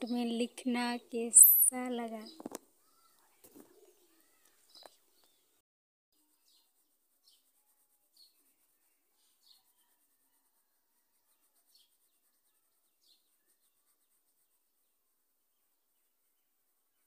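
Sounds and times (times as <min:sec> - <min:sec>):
small bird chirping: 0:00.0 - 0:05.6, 0:06.2 - 0:10.4, 0:11.0 - 0:14.9.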